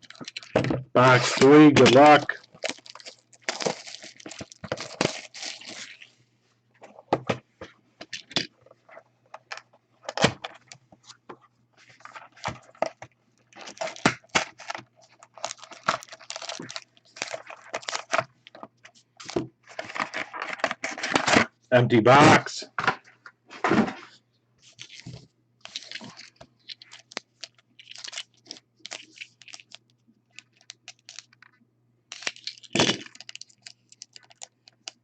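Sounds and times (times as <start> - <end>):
plastic shrink wrap crinkling: 0.0 - 6.1, 11.8 - 21.1, 24.6 - 35.0.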